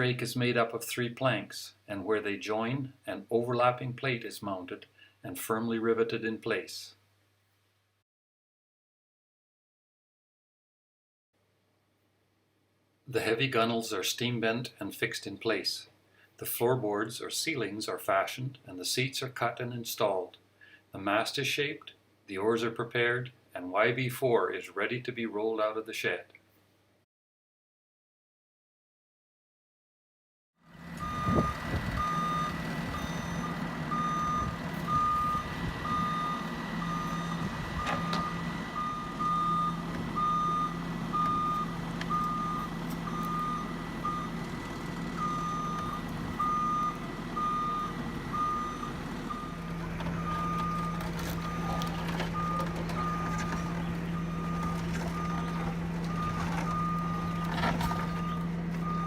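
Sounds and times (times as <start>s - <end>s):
engine hum: 30.7s - 59.0s
reversing alarm beeps: 31.0s - 44.4s, 45.2s - 59.0s.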